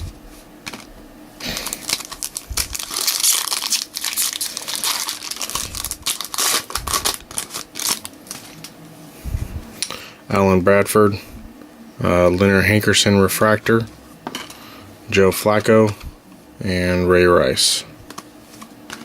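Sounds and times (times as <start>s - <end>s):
wrapper torn and crinkled: 1.4s - 8.7s.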